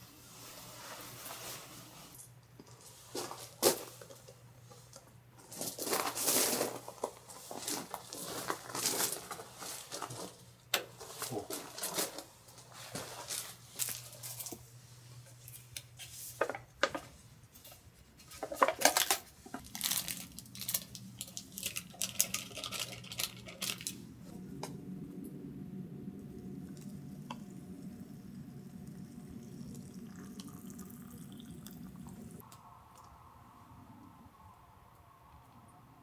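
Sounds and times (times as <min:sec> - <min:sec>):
rustling and crinkling: 0:00.6 - 0:24.8
steady low hum: 0:19.8 - 0:36.0.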